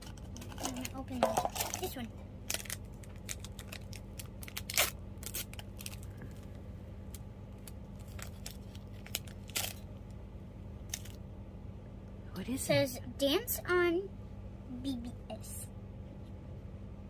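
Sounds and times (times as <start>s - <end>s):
toy package crackling: 0.1s - 6.1s, 7.5s - 9.8s, 10.9s - 11.2s.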